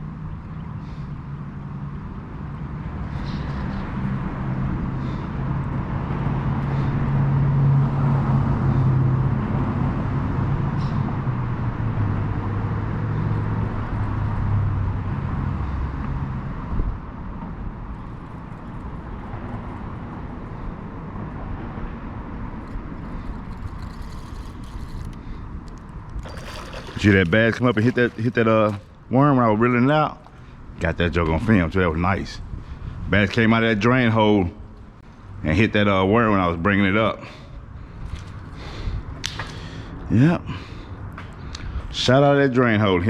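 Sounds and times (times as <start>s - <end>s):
vehicle engine humming: 2.1s - 31.8s.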